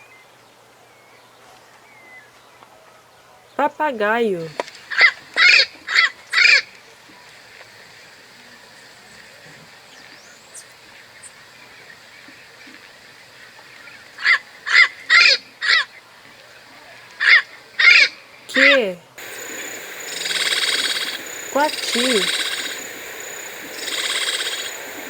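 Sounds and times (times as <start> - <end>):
parrot squawking: 18.6 - 25.0.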